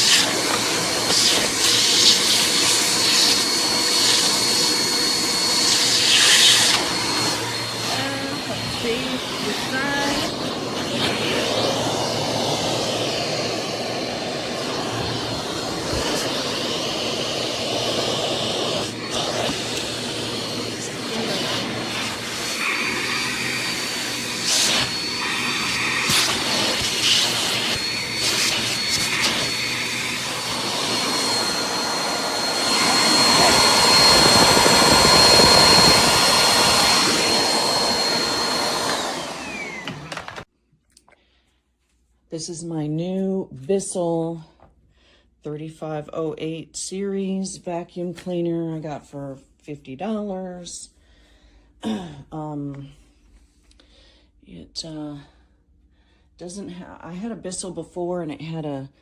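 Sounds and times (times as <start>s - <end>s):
vacuum cleaner motor whine: 0.0s - 40.5s.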